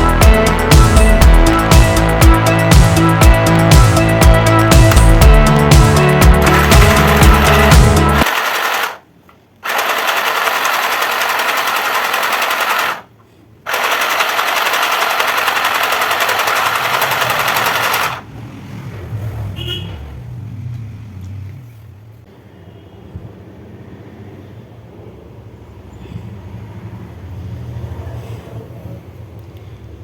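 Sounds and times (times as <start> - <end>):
sewing machine needle rattling: 6.4 - 9.0, 9.6 - 13.1, 13.7 - 18.2.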